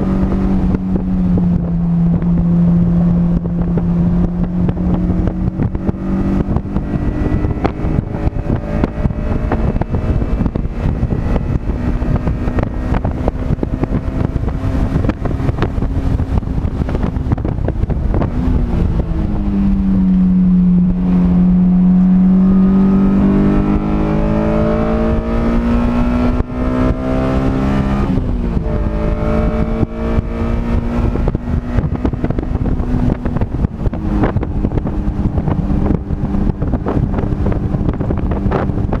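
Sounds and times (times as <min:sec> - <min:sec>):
race car engine revving: 0:00.0 - 0:39.0
wind buffeting microphone: 0:00.0 - 0:39.0.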